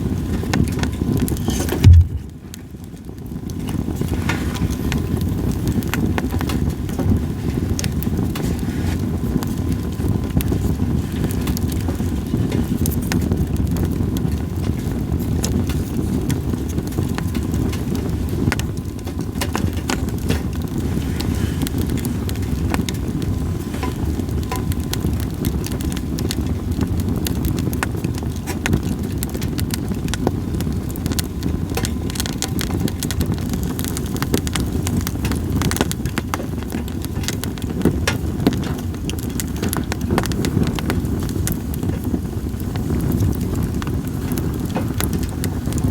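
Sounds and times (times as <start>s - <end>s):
campfire crackling: 0.0s - 45.9s
sharp pops of burning wood: 0.0s - 45.9s
low rushing noise: 1.8s - 2.3s.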